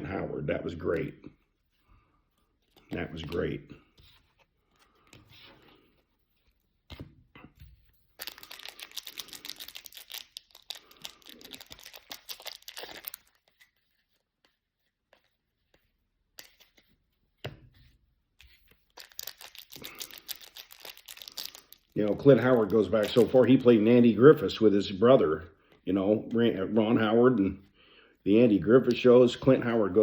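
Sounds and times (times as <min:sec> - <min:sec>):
wrapper crinkling: 0:08.1 - 0:13.8, 0:18.8 - 0:23.8.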